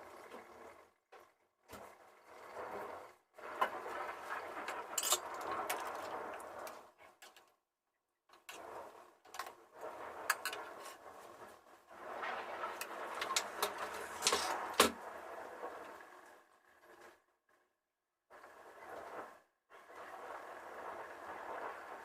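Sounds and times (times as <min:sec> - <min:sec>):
utensil scraping against a pot: 0:04.0 - 0:06.1, 0:10.1 - 0:11.1, 0:12.3 - 0:14.8
steady noisy hiss: 0:09.8 - 0:16.0.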